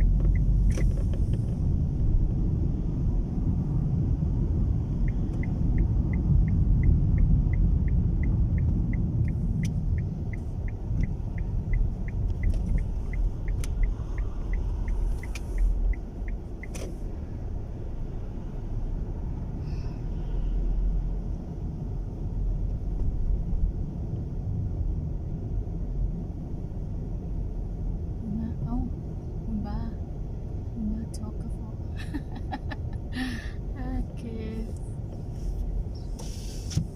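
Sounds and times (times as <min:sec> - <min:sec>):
turn signal ticking: 0:00.0 - 0:17.6, 0:28.5 - 0:36.9
car cabin road and wind rumble: 0:00.0 - 0:36.9.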